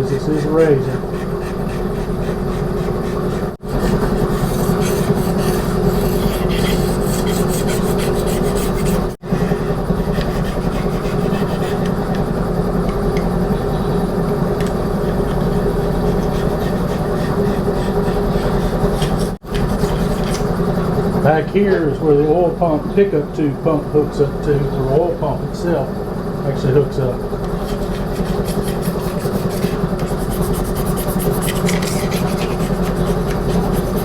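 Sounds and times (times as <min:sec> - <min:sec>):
razor scraper scraping metal: 0:00.0 - 0:13.4, 0:14.6 - 0:20.6, 0:27.4 - 0:34.0
air compressor humming: 0:00.0 - 0:34.0.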